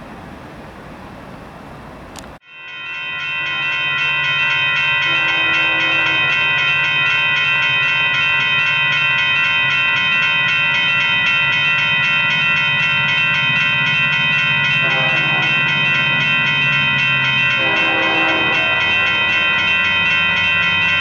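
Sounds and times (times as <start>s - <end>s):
train rumbling: 0.0s - 2.4s
crossing warning bell ringing: 2.2s - 21.0s.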